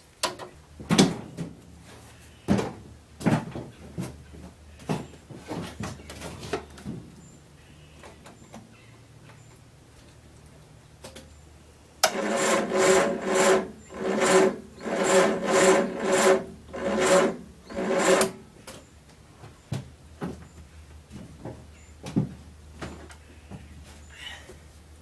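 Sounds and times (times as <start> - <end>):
starter motor cranking engine: 12.0 - 18.5.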